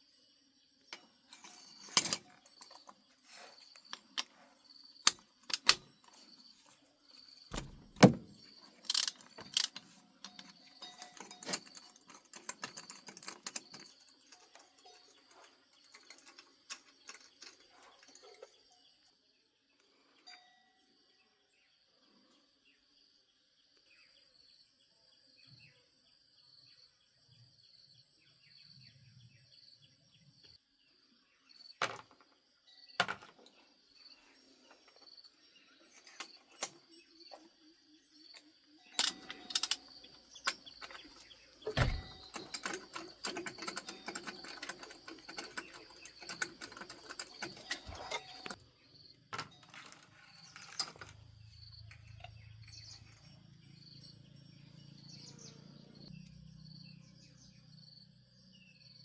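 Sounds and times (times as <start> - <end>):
tools knocking and clattering: 1.0 - 3.0, 5.0 - 6.3, 7.5 - 18.6, 39.0 - 48.6, 49.3 - 51.2.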